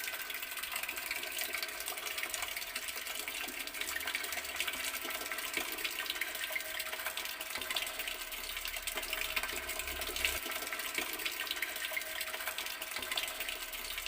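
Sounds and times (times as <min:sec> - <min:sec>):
water running from tap: 0:00.0 - 0:14.0.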